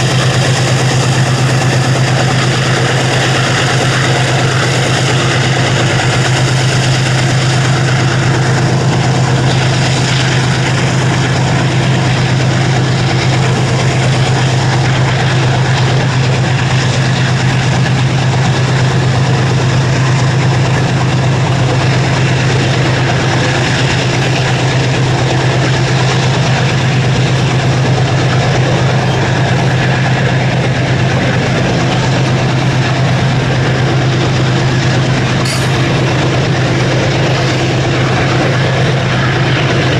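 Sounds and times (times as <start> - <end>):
diesel locomotive engine idling: 0.0 - 39.9.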